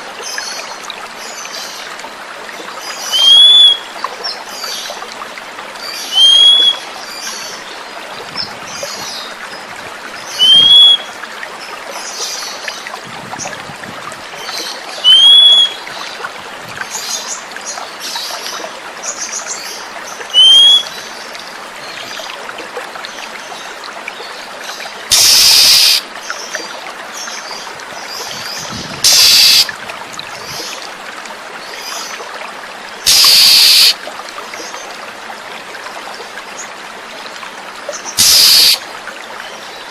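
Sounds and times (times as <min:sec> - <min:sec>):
trickling water: 0:00.0 - 0:39.9
short rising bird whistle: 0:03.2 - 0:03.8, 0:06.2 - 0:06.8, 0:10.4 - 0:11.0, 0:15.0 - 0:15.8, 0:20.4 - 0:20.9, 0:25.1 - 0:26.0, 0:29.0 - 0:29.7, 0:33.1 - 0:34.0, 0:38.2 - 0:38.8
harsh hissing bursts: 0:25.1 - 0:26.0, 0:29.0 - 0:29.7, 0:33.1 - 0:34.0, 0:38.2 - 0:38.8
faint bird chirps: 0:33.1 - 0:34.0, 0:38.2 - 0:38.8.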